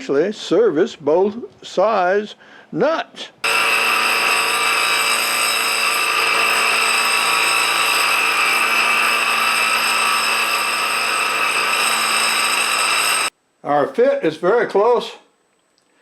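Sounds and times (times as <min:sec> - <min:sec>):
belt grinder motor whine: 0:03.4 - 0:13.3.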